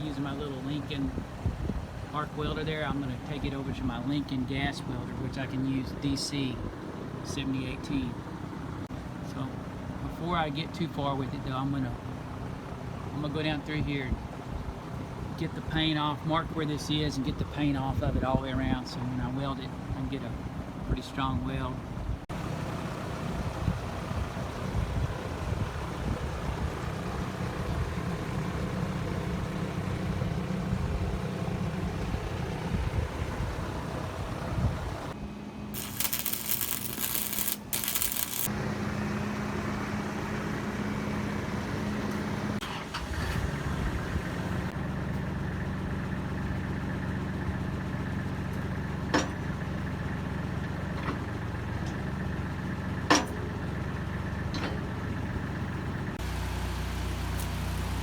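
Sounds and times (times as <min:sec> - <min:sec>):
diesel engine idling: 0:21.6 - 0:35.7, 0:38.5 - 0:58.0
harsh high hiss: 0:35.8 - 0:38.5
sharp clicks: 0:35.8 - 0:38.5.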